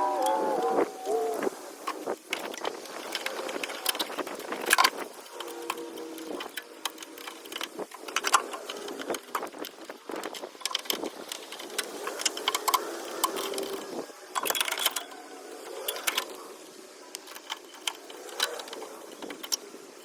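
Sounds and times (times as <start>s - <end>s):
metallic clicks of hand tools: 1.9s - 16.4s.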